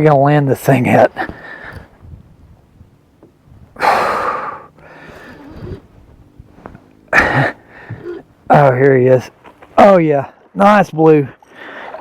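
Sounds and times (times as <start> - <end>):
man breathing hard: 3.8 - 5.6, 7.2 - 8.2
man grunting: 7.2 - 7.6.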